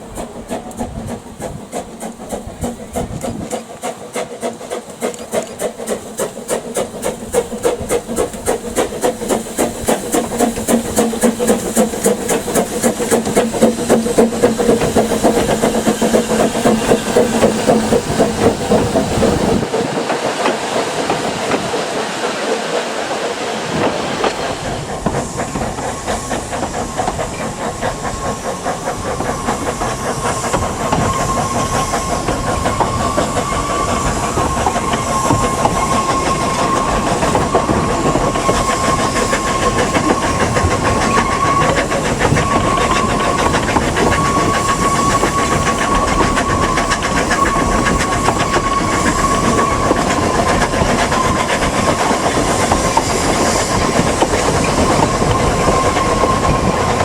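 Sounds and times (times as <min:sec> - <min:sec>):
train clattering and hissing: 0:00.0 - 0:57.0.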